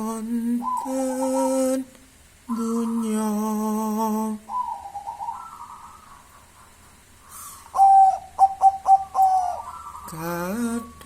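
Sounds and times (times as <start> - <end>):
dove cooing: 0.0 - 1.8, 4.4 - 6.7, 7.3 - 11.0
person chanting: 0.0 - 1.9, 2.5 - 4.6, 10.1 - 11.0.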